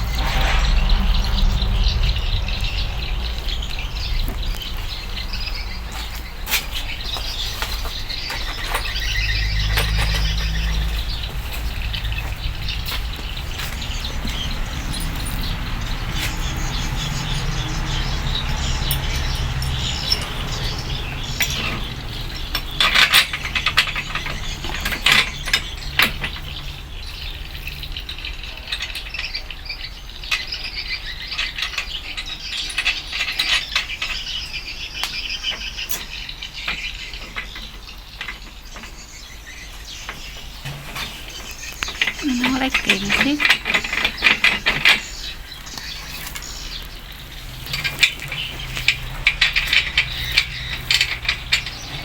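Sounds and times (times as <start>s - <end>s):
steady low hum: 0.0s - 27.8s
metal parts and tools clinking: 5.5s - 52.0s.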